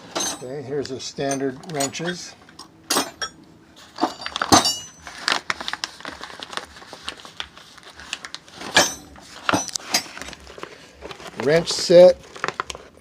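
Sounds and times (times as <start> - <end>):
wrenches clinking in metal drawer: 0.0 - 0.6, 1.2 - 3.3, 3.9 - 5.0.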